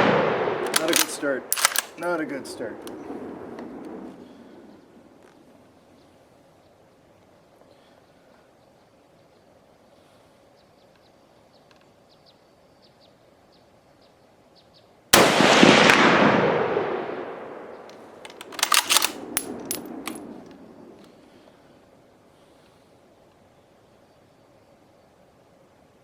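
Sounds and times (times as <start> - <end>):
rifle shot with echo: 0.0 - 4.6, 15.2 - 21.0
rifle bolt clicking: 0.7 - 2.1, 18.3 - 20.3.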